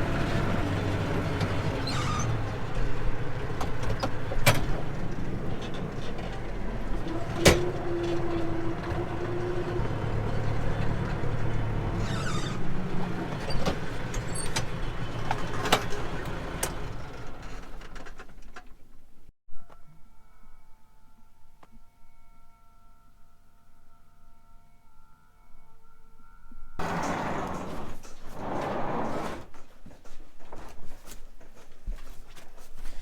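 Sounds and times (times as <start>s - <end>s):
engine running: 0.0s - 18.2s, 26.8s - 29.5s.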